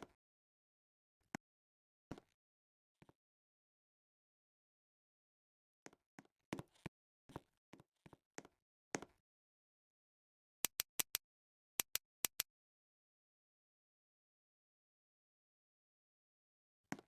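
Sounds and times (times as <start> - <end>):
short sharp clicks: 10.7 - 11.2, 11.8 - 12.4.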